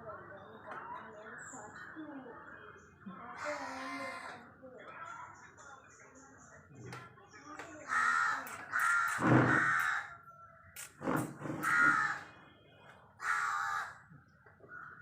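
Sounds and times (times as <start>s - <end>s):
crow cawing: 7.8s - 10.2s, 11.6s - 12.4s, 13.2s - 14.1s.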